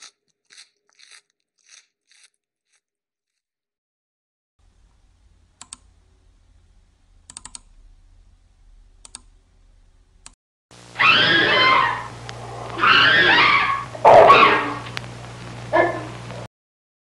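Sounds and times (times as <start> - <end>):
faint low rumble: 4.6 - 11.0, 11.7 - 12.8
wavering animal call: 11.0 - 15.0.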